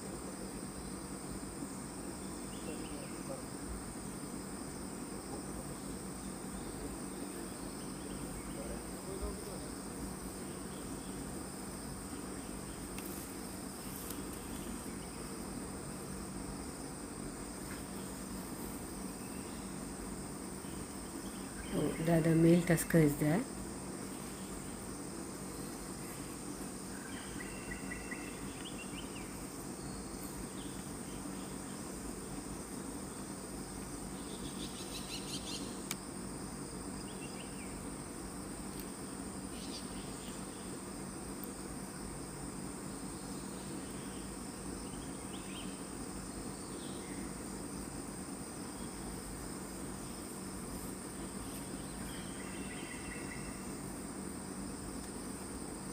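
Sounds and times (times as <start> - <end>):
insects shrilling: 0.6 - 55.9
faint ticks: 12.9 - 13.2, 41.4 - 41.6.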